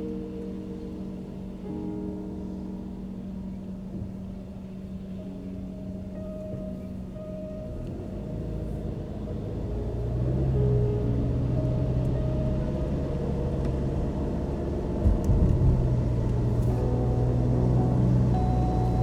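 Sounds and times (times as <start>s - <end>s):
car engine and tyres rumbling: 0.0s - 19.0s
short low thumps: 15.0s - 19.0s.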